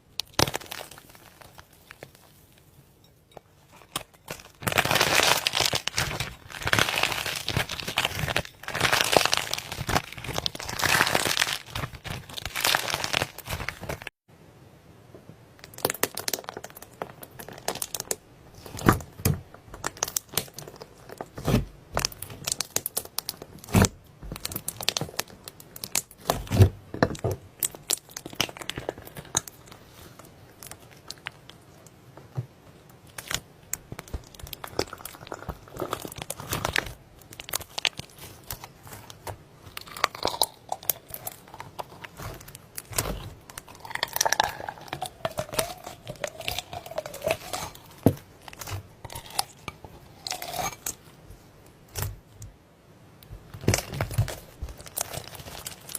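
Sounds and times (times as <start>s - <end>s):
slime squished by hand: 33.0s - 50.9s.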